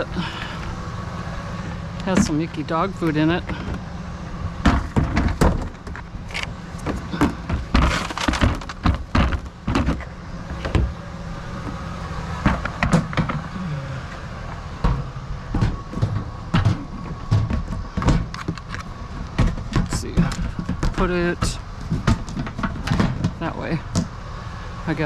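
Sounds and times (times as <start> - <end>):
low engine hum: 0.0 - 25.0
items knocking and scraping: 4.6 - 11.0, 12.4 - 13.5, 14.8 - 24.1.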